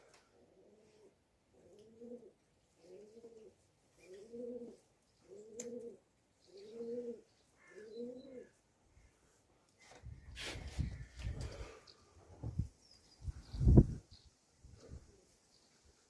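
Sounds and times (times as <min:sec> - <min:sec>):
pigeon cooing: 0:00.3 - 0:08.6.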